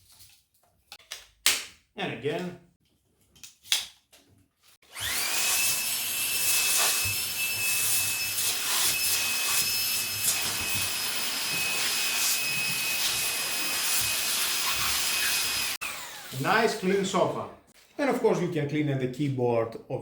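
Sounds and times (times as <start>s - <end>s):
vacuum motor whining: 4.9s - 16.5s
vacuum nozzle rubbing upholstery: 5.0s - 15.8s.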